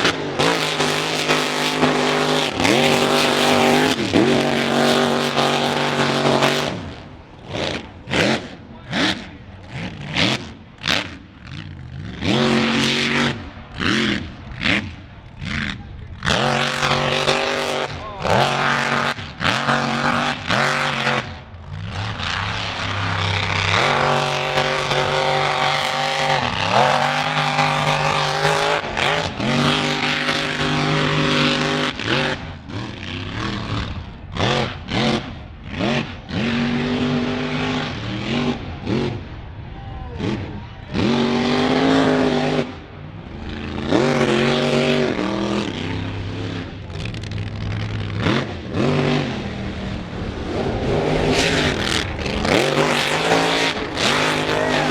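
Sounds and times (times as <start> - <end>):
truck engine revving hard: 0.0 - 54.9.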